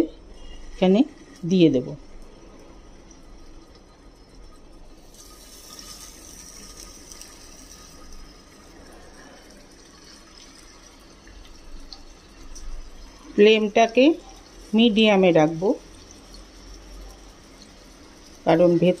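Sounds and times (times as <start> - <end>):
patties sizzling in hot oil: 0.2 - 19.0.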